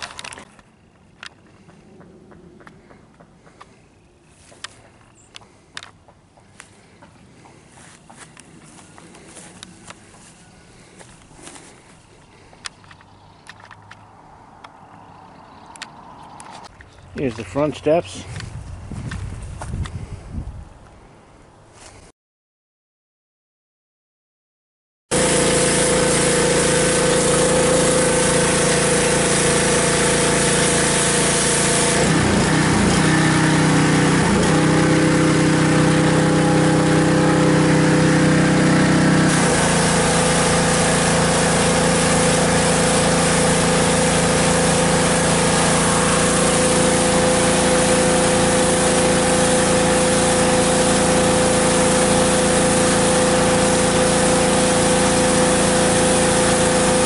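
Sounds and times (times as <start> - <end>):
pressure washer engine running: 6.6 - 12.7, 25.1 - 57.0.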